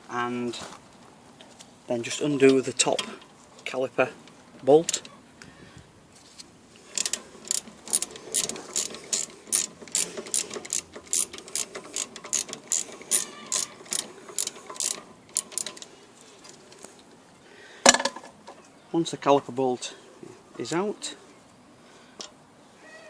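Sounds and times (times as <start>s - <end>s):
socket ratchet clicking: 7.0s - 15.9s.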